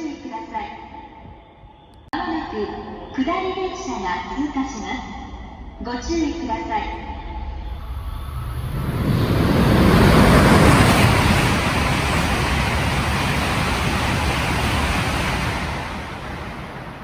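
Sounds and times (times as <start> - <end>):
high-speed train passing: 4.2 - 17.0.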